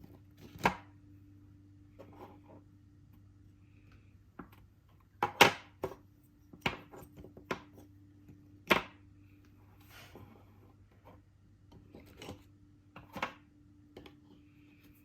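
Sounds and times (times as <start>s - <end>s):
wooden puzzle pieces knocking: 4.4s - 7.8s.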